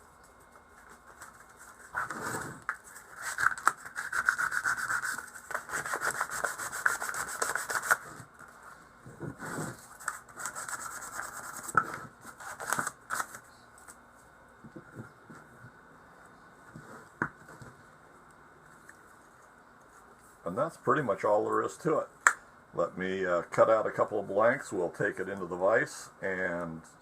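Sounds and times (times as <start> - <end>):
sandpaper scraping: 1.1 - 8.2, 9.4 - 12.7.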